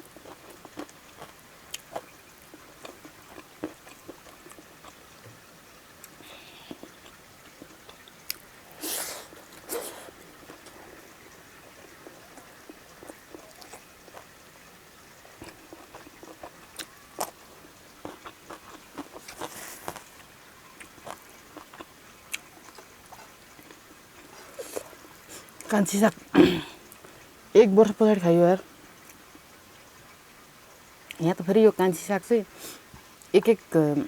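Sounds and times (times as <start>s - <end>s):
person chewing and biting food: 11.9s - 14.3s, 18.0s - 20.2s.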